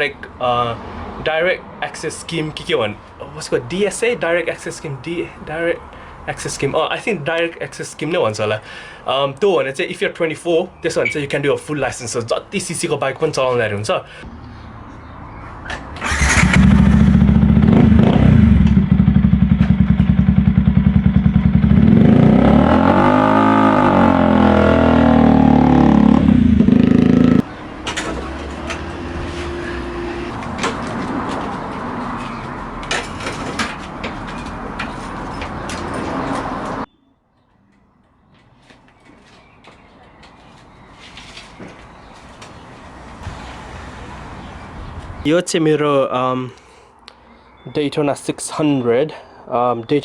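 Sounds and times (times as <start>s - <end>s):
street noise: 0.0s - 50.0s
motorcycle engine idling: 16.0s - 22.0s.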